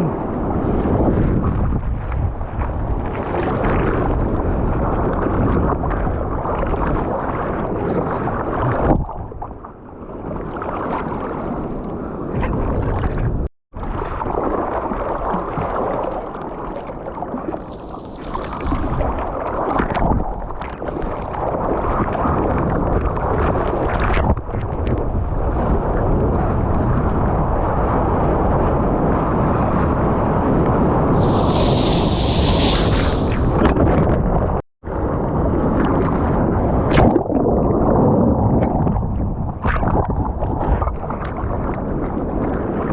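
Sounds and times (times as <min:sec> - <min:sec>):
water and wind rushing: 0:00.0 - 0:42.9
water splashes: 0:10.3 - 0:25.4, 0:31.0 - 0:34.6, 0:35.7 - 0:42.9.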